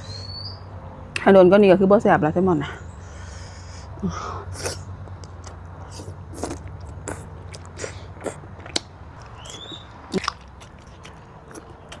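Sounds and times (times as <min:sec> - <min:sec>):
chewing and mouth noises: 0:04.5 - 0:12.0.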